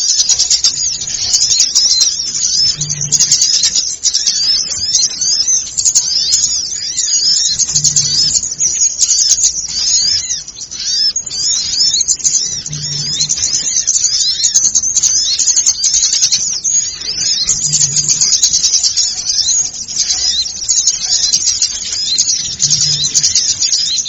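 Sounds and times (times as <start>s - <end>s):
small birds chirping chorus: 0.0s - 24.0s.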